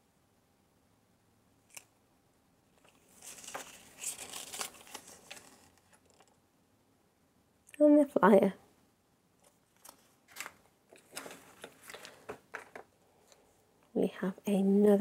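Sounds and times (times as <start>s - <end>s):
paper crinkling and rustling: 2.7s - 6.4s, 9.4s - 13.5s.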